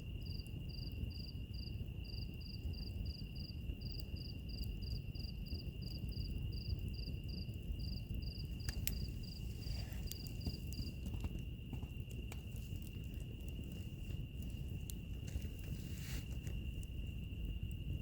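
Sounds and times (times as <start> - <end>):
crickets chirping: 0.0 - 18.0
wood fire crackling and popping: 0.0 - 18.0
high insect trill: 0.2 - 18.0
low steady rumble: 6.8 - 18.0.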